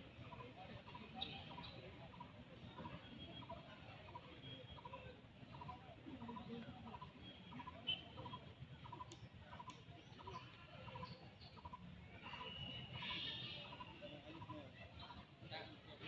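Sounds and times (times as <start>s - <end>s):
click: 9.0s - 9.9s.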